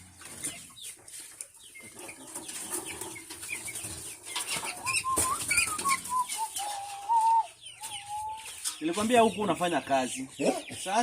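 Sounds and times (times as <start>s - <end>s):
chickens clucking: 0.0s - 11.0s
chicks peeping: 0.0s - 11.0s
wing flapping and scuffling: 0.1s - 9.3s
drawn-out chicken call: 1.8s - 8.8s.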